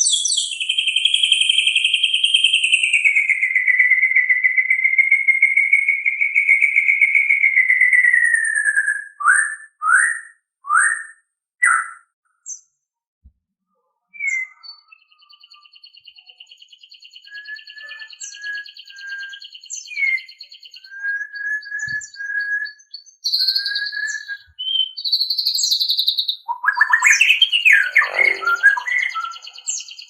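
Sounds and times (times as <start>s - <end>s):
bird whistling: 0.0s - 12.6s, 14.1s - 30.0s
bird trilling: 23.2s - 30.0s.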